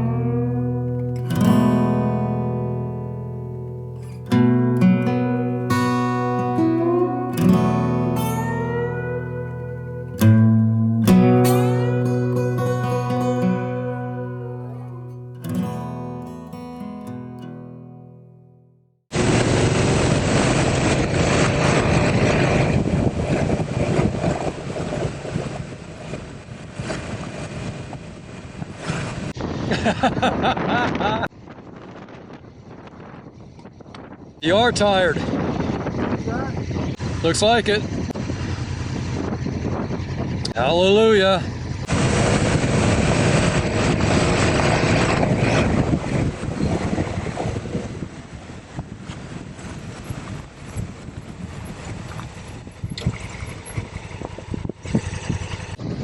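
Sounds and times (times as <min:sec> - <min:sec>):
motorcycle engine: 0:05.2 - 0:16.2, 0:19.1 - 0:28.2, 0:35.3 - 0:56.0
wind buffeting microphone: 0:19.1 - 0:56.0.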